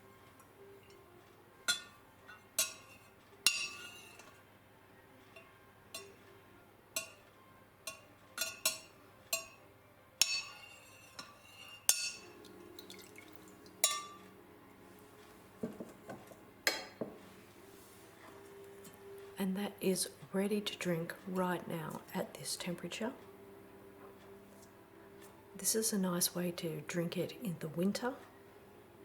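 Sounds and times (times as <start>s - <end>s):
spoon clinking against jug: 10.2s - 14.3s.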